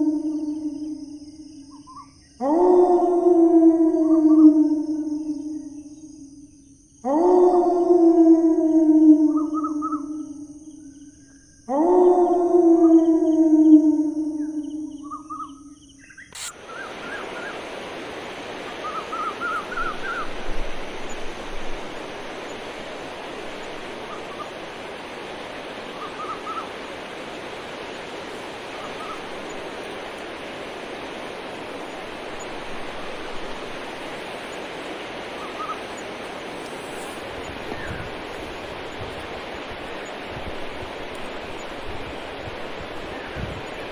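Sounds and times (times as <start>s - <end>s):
howl-like animal call: 0.0s - 1.4s, 2.4s - 6.0s, 7.0s - 10.6s, 11.7s - 15.7s
bird calls with rising notes: 14.6s - 42.2s
rushing outdoor hiss: 16.0s - 43.9s.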